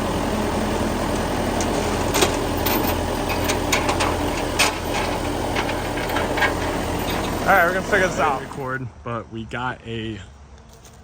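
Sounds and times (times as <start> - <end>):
backhoe engine idling: 0.0 - 8.8
metallic clanks and clicks: 1.6 - 7.4.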